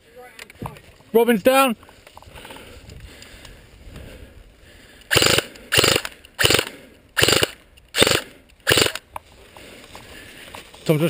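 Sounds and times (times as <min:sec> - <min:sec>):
airsoft rifle firing bursts: 0:05.1 - 0:09.0.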